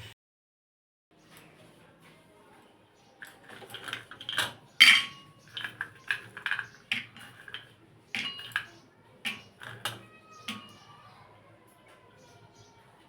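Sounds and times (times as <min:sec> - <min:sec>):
kitchen utensils clinking: 0:03.2 - 0:11.2.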